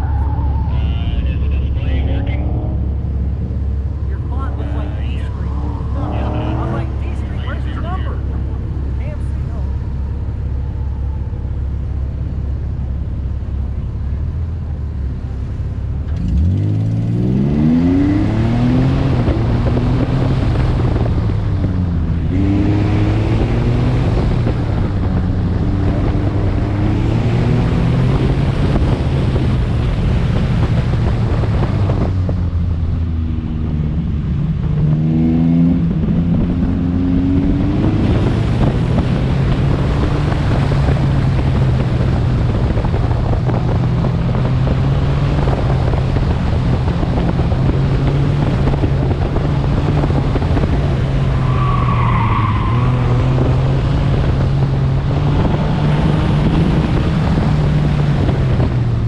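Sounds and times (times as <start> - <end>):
car engine revving: 0.0 - 59.0
wind buffeting microphone: 17.9 - 51.8, 52.4 - 59.0.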